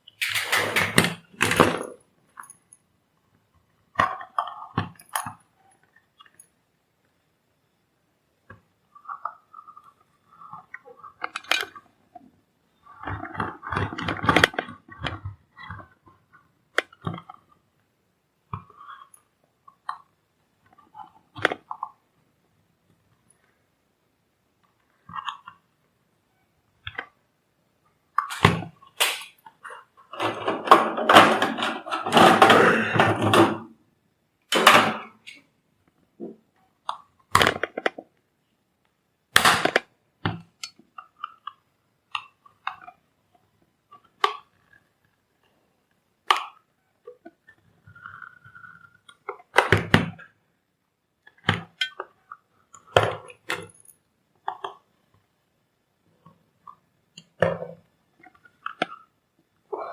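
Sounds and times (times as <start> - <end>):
knocks and clicks: 0.2 - 2.0.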